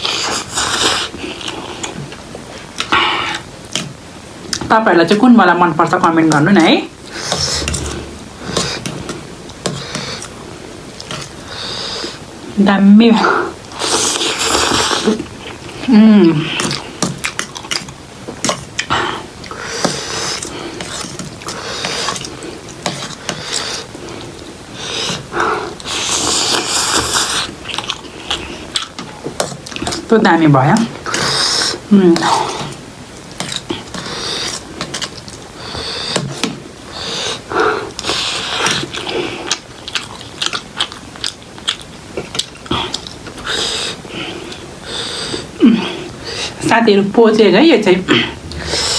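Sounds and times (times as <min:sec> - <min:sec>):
person slurping noodles: 0:00.0 - 0:01.7, 0:13.2 - 0:16.8, 0:24.8 - 0:27.6, 0:48.1 - 0:48.9
wet chewing and biting: 0:38.0 - 0:43.6
hissy intakes of breath: 0:48.4 - 0:48.9.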